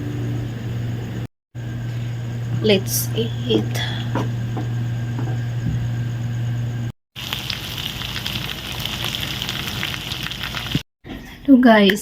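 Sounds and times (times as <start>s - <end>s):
low hum: 0.0s - 7.0s
food sizzling in a pan: 7.2s - 10.8s.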